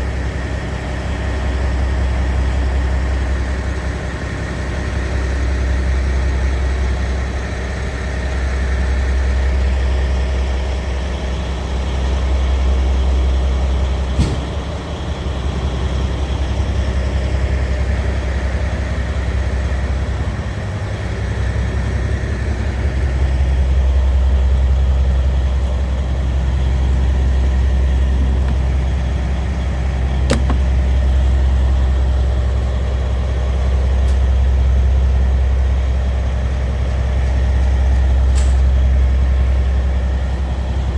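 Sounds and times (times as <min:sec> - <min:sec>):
diesel engine idling: 0:14.8 - 0:40.9
sharp click: 0:30.3 - 0:30.7.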